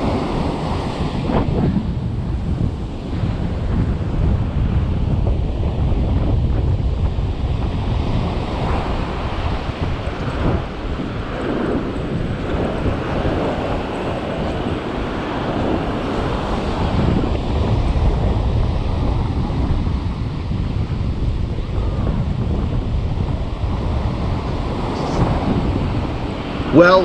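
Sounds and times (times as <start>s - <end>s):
surf breaking on beach: 0.0s - 27.0s
wind buffeting microphone: 0.0s - 27.0s.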